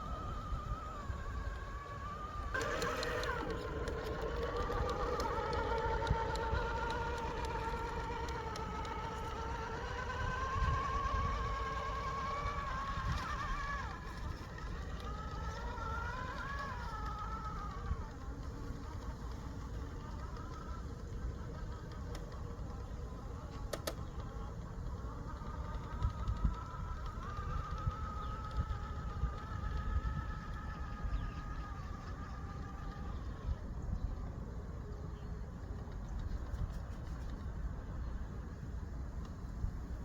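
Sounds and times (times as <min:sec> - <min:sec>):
electric motor and gears whining: 0:00.0 - 0:40.0.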